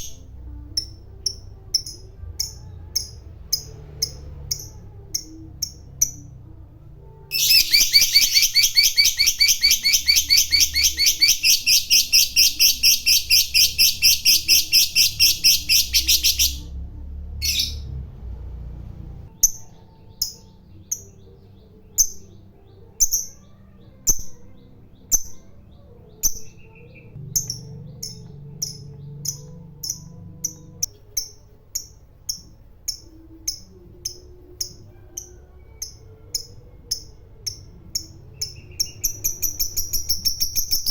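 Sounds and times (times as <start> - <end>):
lovebird chattering trill: 7.3 - 16.7.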